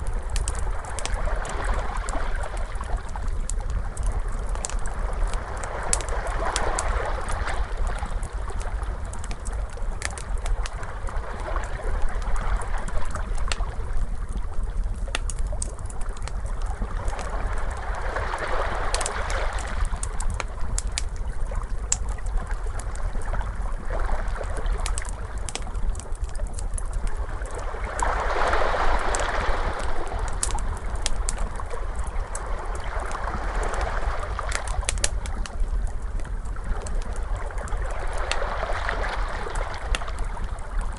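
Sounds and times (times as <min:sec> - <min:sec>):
wood fire crackling and popping: 0:00.0 - 0:40.9
ocean waves washing in: 0:27.6 - 0:31.0, 0:38.0 - 0:40.2.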